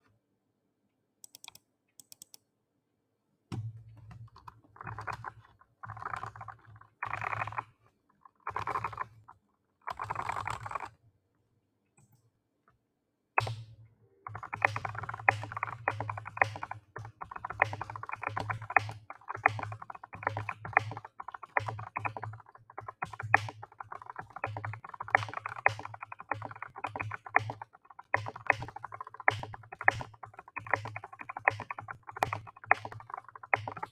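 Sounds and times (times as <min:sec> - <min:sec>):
mechanical keyboard typing: 0:01.2 - 0:02.4, 0:04.4 - 0:07.7, 0:08.5 - 0:09.3, 0:09.9 - 0:10.9, 0:14.3 - 0:33.9.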